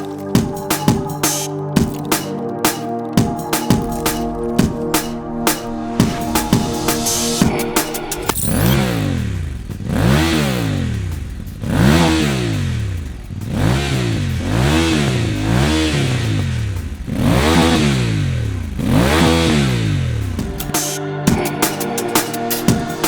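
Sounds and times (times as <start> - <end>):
motorcycle engine revving: 4.3 - 20.7.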